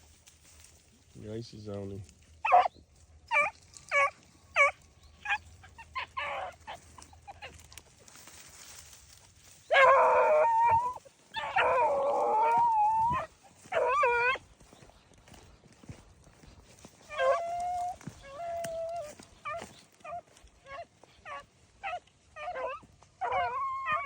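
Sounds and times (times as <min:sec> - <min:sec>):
dog baying: 0:02.4 - 0:02.7, 0:03.3 - 0:07.6, 0:09.7 - 0:14.4, 0:17.0 - 0:24.0.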